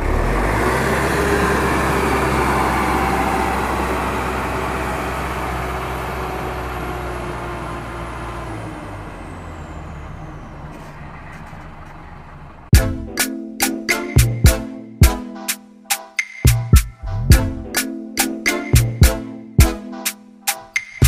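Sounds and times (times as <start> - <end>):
vehicle engine droning with hiss: 0.0 - 12.7.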